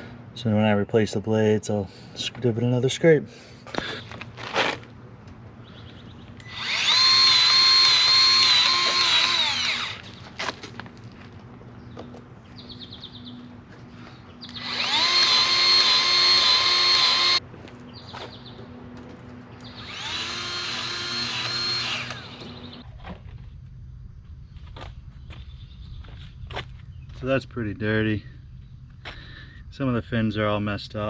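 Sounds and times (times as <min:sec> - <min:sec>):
power drill whining: 0:06.4 - 0:10.2, 0:14.5 - 0:17.4, 0:19.6 - 0:22.8.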